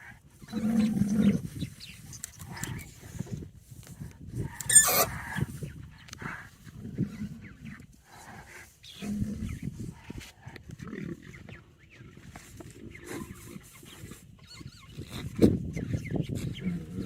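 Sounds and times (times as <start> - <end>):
lions growling and grunting: 0.4 - 1.8, 6.2 - 15.3, 16.3 - 17.0.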